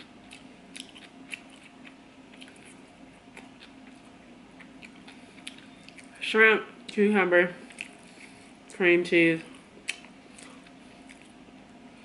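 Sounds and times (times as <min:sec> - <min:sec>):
wet chewing smacks: 0:00.0 - 0:06.1, 0:07.6 - 0:08.4, 0:09.8 - 0:11.4
faint steady hum: 0:00.0 - 0:12.0.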